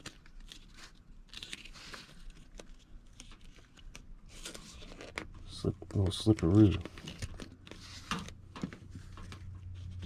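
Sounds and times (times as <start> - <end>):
tape crinkling and tearing: 0.0 - 10.0.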